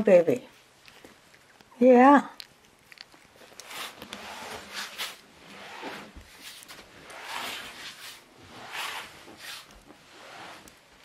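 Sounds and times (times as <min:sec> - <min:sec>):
soft rustling and rubbing: 0:00.4 - 0:11.0.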